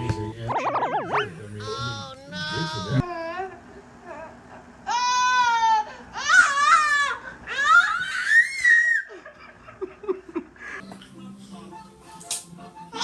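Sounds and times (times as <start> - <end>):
baby squealing: 0.6 - 3.1.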